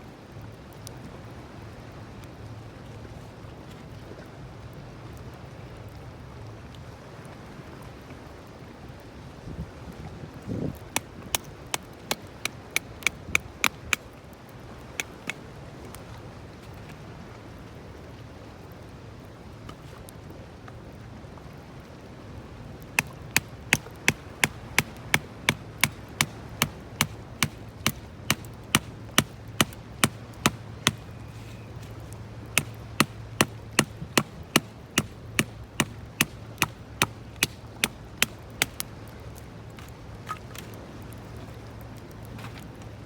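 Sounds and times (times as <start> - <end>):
sharp knocks: 23.0 - 38.8.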